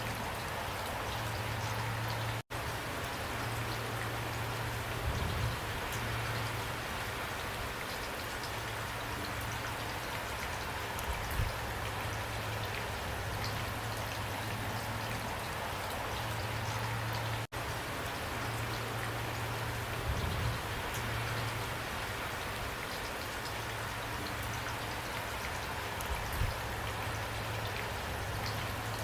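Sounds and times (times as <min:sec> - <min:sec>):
steady rain falling: 0:00.0 - 0:29.0
raindrops ticking: 0:05.8 - 0:29.0.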